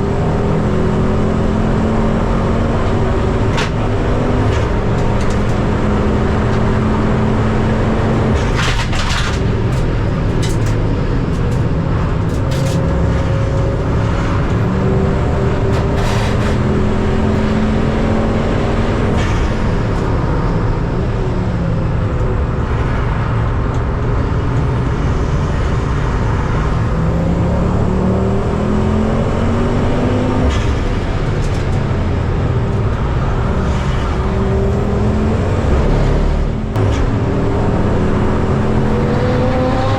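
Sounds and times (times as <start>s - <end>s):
racing car engine: 0.0s - 39.9s.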